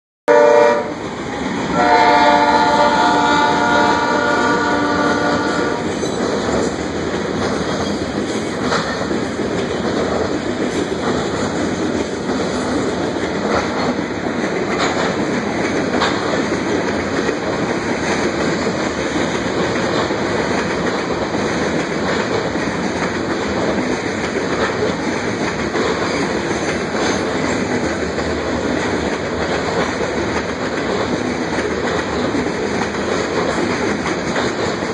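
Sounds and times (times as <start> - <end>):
locomotive air horn: 0.3 - 1.0, 1.7 - 5.9
freight train rumbling past: 0.3 - 34.9
wheels clicking over rail joints: 5.4 - 34.9.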